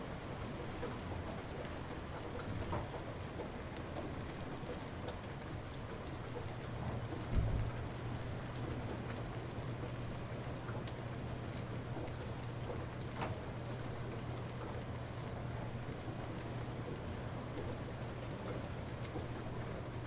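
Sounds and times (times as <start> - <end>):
light rain falling: 0.0 - 20.0
brief low rumble: 7.2 - 8.0.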